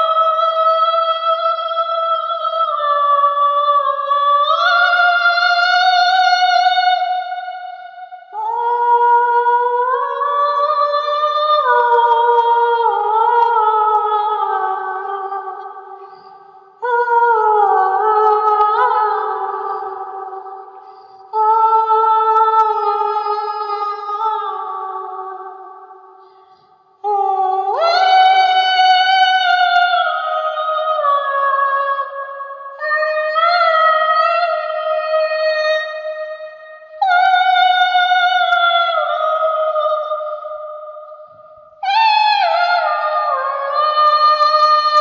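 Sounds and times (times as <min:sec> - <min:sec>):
person singing wordless high notes: 0:08.3 - 0:25.6.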